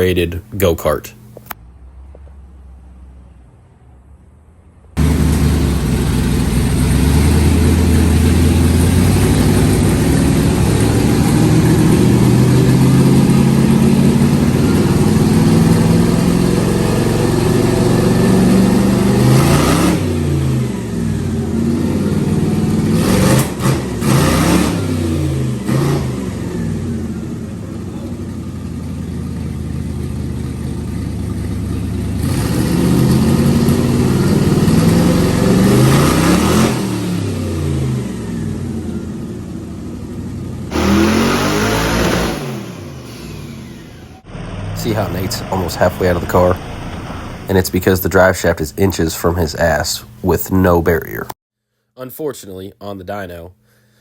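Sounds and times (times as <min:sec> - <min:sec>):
engine revving loudly: 0:05.0 - 0:28.2, 0:32.0 - 0:39.5, 0:40.7 - 0:49.7
sharp exhaust cracks: 0:40.0 - 0:51.3.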